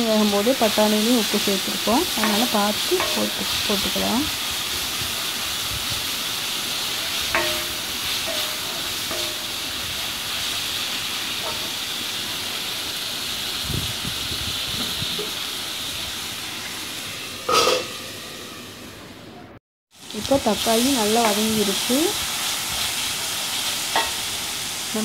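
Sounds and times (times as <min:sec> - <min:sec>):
vegetables sizzling in oil: 0:00.0 - 0:18.7, 0:19.9 - 0:25.0
glass lid clattering on pan: 0:17.5 - 0:17.9.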